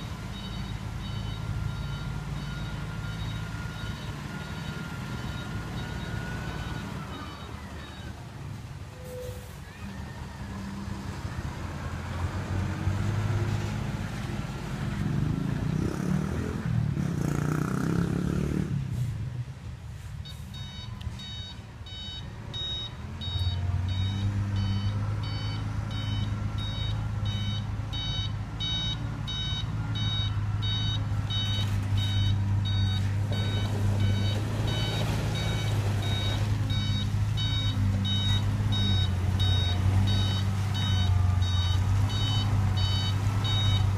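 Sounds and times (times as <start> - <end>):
diesel truck engine revving: 0.0 - 8.4, 9.9 - 19.2, 20.6 - 43.9
reversing alarm beeping: 0.3 - 8.2, 20.2 - 43.9.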